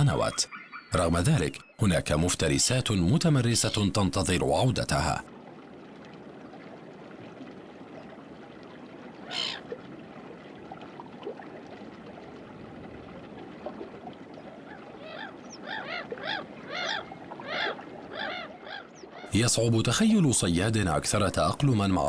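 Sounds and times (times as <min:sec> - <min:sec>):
bird calling: 0:00.0 - 0:01.8, 0:09.2 - 0:09.6, 0:14.3 - 0:19.6
stream water running over rocks: 0:04.0 - 0:22.0.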